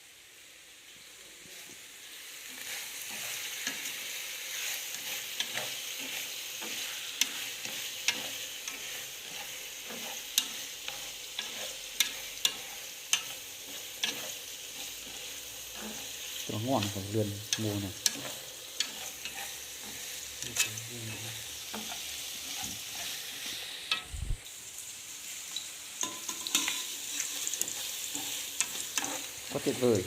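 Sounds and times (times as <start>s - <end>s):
food sizzling in a pan: 0.0s - 30.0s
utensil clinking against pan: 26.0s - 27.3s.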